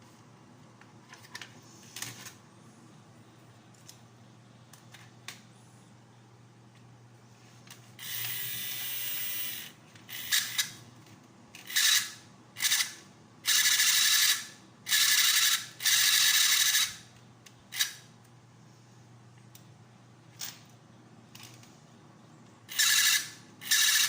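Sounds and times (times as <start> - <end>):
toy motor and gears whirring: 8.0 - 10.8, 11.6 - 17.0, 17.7 - 18.1, 22.7 - 24.0.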